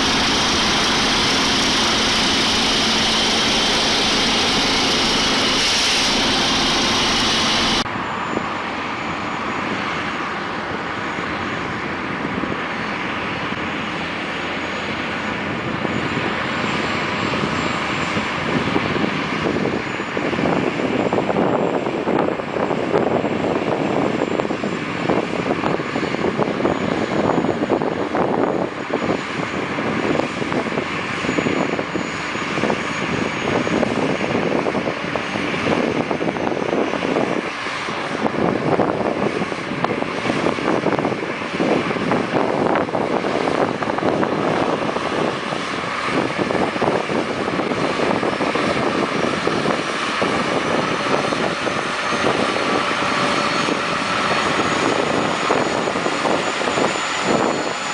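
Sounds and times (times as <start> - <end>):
engine running: 0.0 - 7.9, 31.6 - 57.9.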